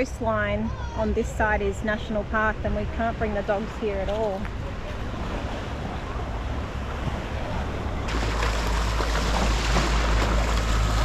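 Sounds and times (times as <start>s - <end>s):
ocean surf washing on beach: 3.4s - 11.0s.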